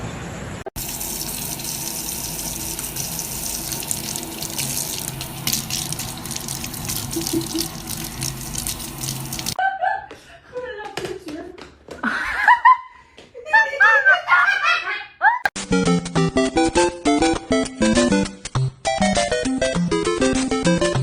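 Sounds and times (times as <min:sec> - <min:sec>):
running water: 0:00.7 - 0:09.6.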